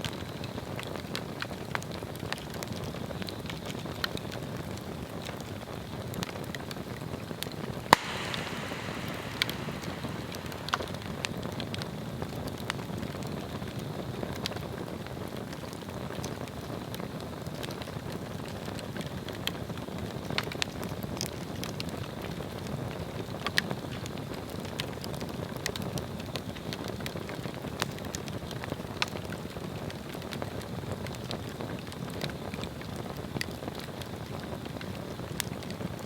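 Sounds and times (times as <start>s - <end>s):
rush of flames: 7.9s - 12.6s
wood crackling and popping: 7.9s - 13.2s.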